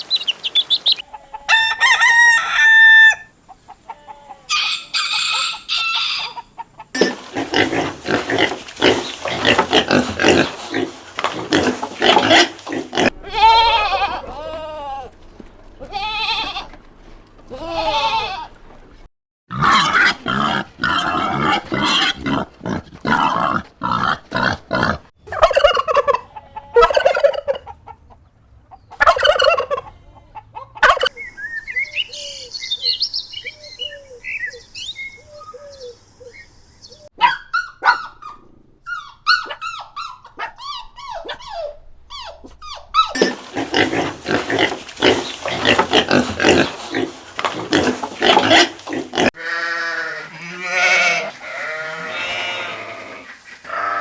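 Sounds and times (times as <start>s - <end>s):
turkeys gobbling: 0.0s - 3.9s, 4.5s - 13.2s, 25.3s - 28.3s, 28.9s - 31.3s, 43.0s - 49.4s, 53.0s - 54.0s
chickens clucking: 0.0s - 13.2s, 25.3s - 31.3s, 43.1s - 49.4s, 51.2s - 54.0s.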